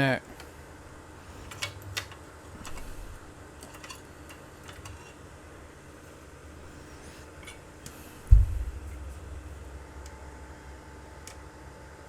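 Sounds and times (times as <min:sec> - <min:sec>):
low steady hum: 0:00.0 - 0:12.0
small tools clicking and tapping: 0:03.6 - 0:05.2.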